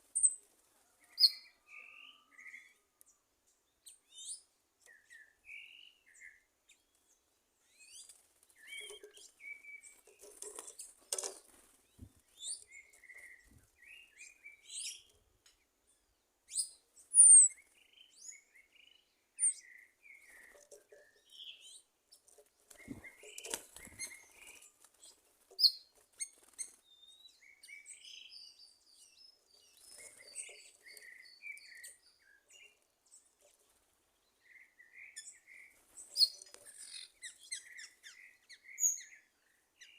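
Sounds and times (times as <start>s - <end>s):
birds chirping: 1.0s - 15.3s, 16.0s - 39.9s.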